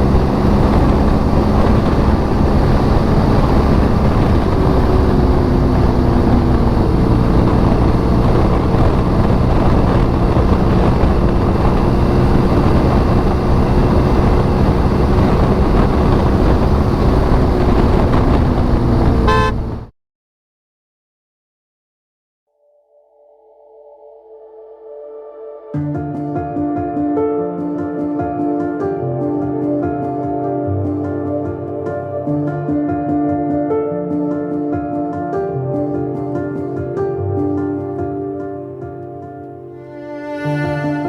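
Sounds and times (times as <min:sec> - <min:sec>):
motorcycle engine running: 0:00.0 - 0:19.9
wind rushing: 0:00.0 - 0:19.9
short horn-like tone: 0:19.1 - 0:19.9.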